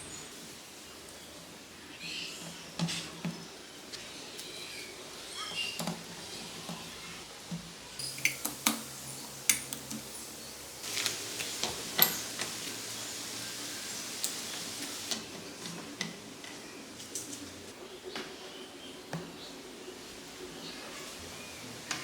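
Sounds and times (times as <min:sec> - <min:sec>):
metal tools clinking: 0:12.0 - 0:12.4.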